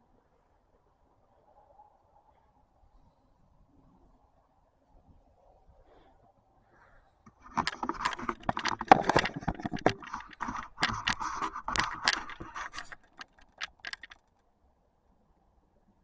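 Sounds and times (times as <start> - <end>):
rustling and scraping: 7.3 - 14.3
sharp clicks: 7.3 - 14.3.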